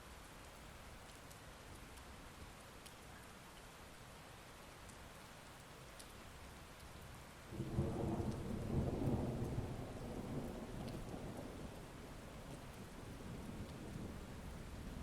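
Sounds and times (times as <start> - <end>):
heavy rain: 0.0 - 15.0
thunder rumbling: 7.6 - 11.8.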